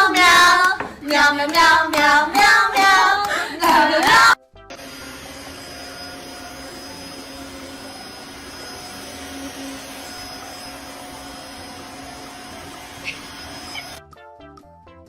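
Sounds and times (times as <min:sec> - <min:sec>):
small motor running: 0:04.7 - 0:14.0.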